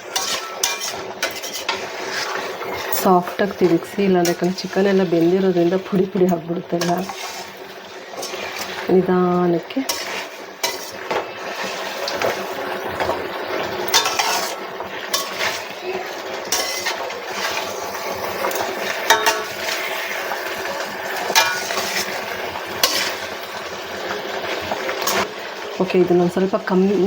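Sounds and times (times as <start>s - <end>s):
ladle scraping metal pan: 0.0s - 25.3s
food sizzling: 0.0s - 27.0s
ladle clinking on pan: 0.2s - 1.7s, 13.9s - 15.6s, 18.5s - 19.7s, 21.3s - 22.0s.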